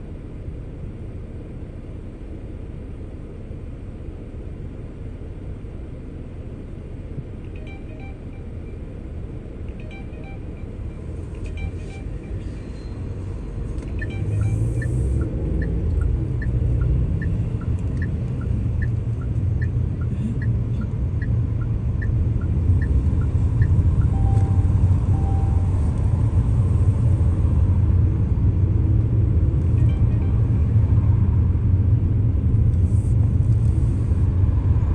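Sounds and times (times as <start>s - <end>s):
car cabin road and engine rumble: 0.0s - 34.9s
turn signal ticking: 13.7s - 26.5s.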